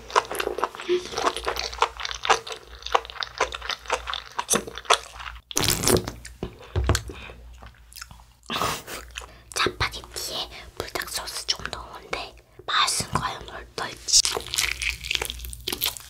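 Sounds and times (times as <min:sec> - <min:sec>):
crisp chewing crunches: 0:00.0 - 0:06.4, 0:14.2 - 0:16.0
low knock: 0:06.8 - 0:07.1.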